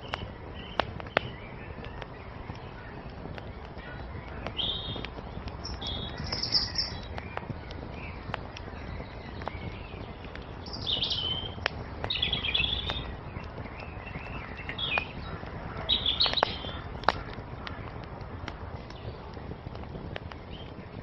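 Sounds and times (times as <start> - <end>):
songbirds twittering: 0.0 - 21.0
wood fire crackling: 0.0 - 21.0.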